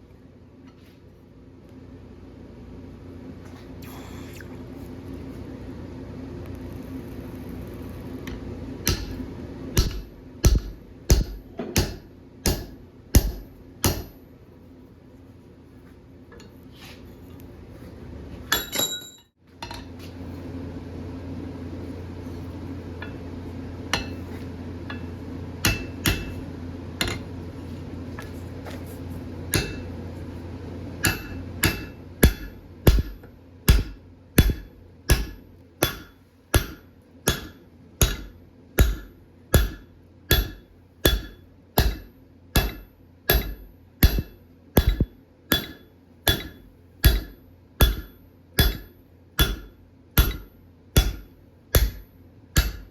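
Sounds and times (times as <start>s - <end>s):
steady hum: 0.0s - 52.9s
hammer ringing on anvil: 8.9s - 9.2s, 9.8s - 14.2s, 18.5s - 19.3s, 23.9s - 24.2s, 24.9s - 26.4s, 29.5s - 29.9s, 31.0s - 52.9s.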